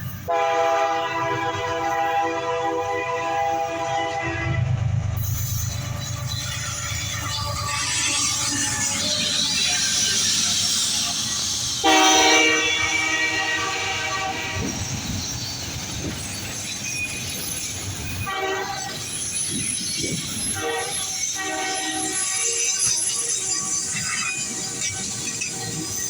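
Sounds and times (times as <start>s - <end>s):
train rumble and rail noise: 0.0s - 26.0s
train air horn blasts: 0.3s - 4.8s, 11.8s - 14.8s, 18.2s - 19.0s, 20.6s - 22.5s.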